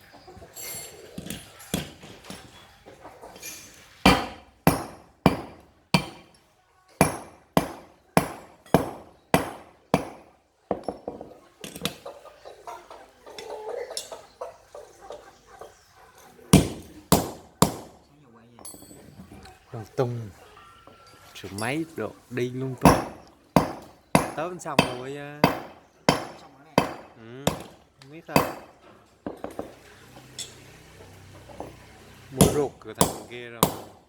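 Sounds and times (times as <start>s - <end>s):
hammer striking steel: 4.0s - 6.4s, 7.0s - 11.2s, 16.5s - 18.0s, 22.8s - 30.7s, 31.4s - 34.0s.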